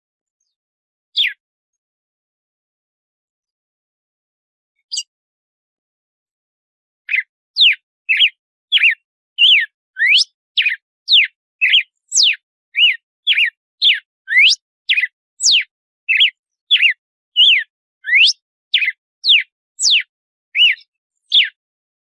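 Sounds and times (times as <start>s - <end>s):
bird singing whistled notes: 1.2s - 1.4s, 4.8s - 5.1s, 7.1s - 21.6s.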